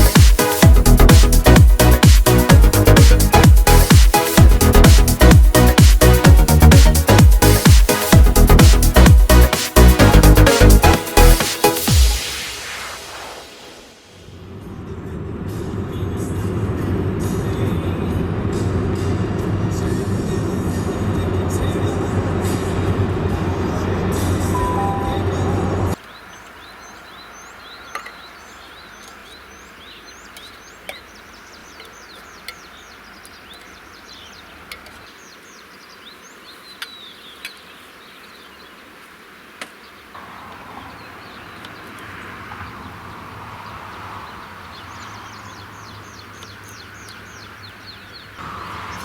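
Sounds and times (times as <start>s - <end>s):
steady hiss: 0.0s - 14.5s
small birds chirping: 23.6s - 49.0s.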